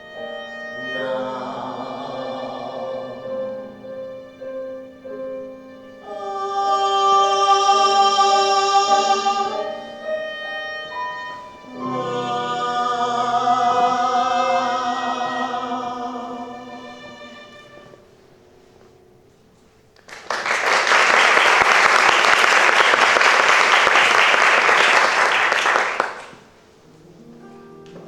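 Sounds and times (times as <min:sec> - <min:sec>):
voices singing with vibrato: 0:00.0 - 0:05.0, 0:05.9 - 0:18.0
instrumental accompaniment: 0:00.0 - 0:19.6.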